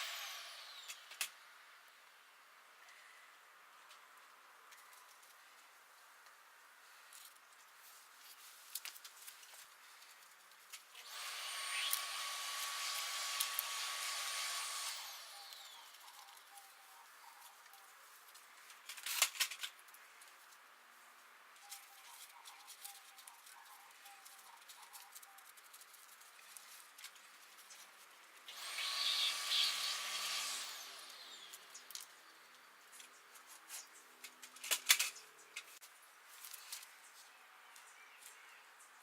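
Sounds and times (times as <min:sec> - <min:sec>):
small power tool running: 0:00.0 - 0:01.2, 0:11.0 - 0:16.3, 0:28.5 - 0:32.0.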